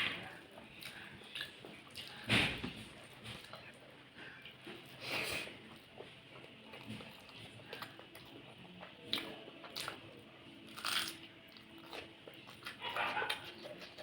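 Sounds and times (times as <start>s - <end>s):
person chewing food: 0.5s - 14.0s
crisp crunches of bites: 10.7s - 11.2s.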